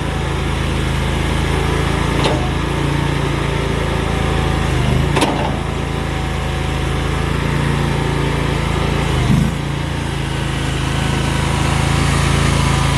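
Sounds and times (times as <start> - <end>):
loader engine running: 0.0 - 12.9.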